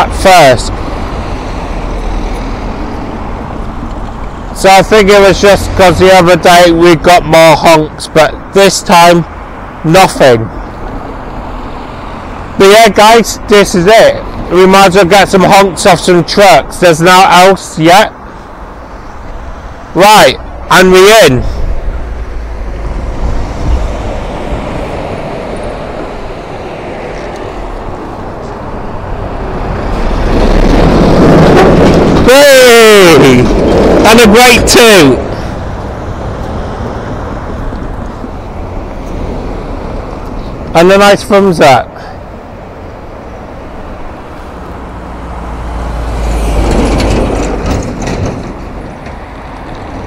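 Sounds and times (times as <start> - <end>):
road traffic passing: 0.0 - 50.0
vehicle approaching: 0.0 - 50.0
rattling clatters: 46.7 - 50.0.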